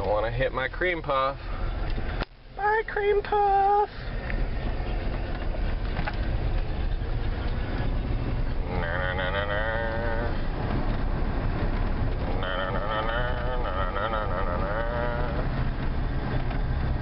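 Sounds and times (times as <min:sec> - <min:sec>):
pickup truck engine rumble: 0:00.0 - 0:17.0
wavering animal-like call: 0:08.5 - 0:10.5, 0:12.2 - 0:15.6.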